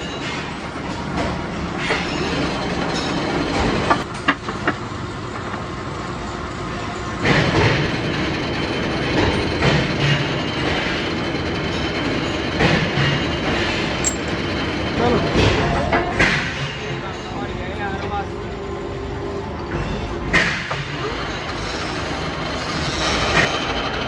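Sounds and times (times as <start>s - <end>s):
metalworking machinery running: 0.0s - 24.0s
sharp metallic clanks: 11.7s - 14.4s.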